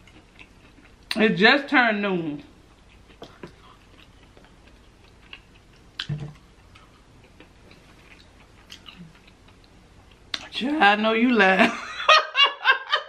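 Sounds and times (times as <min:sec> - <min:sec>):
person chewing fried chicken: 0:00.0 - 0:01.1, 0:02.6 - 0:10.4
short low thud: 0:06.1 - 0:06.4.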